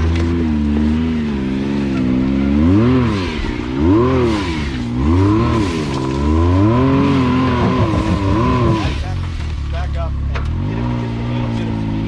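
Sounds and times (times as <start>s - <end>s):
utv engine revving: 0.0s - 12.0s.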